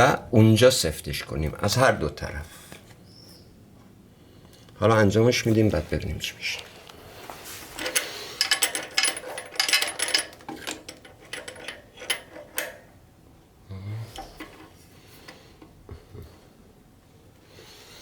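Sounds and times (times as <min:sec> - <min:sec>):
metallic clicks and rattles: 0:07.8 - 0:12.9.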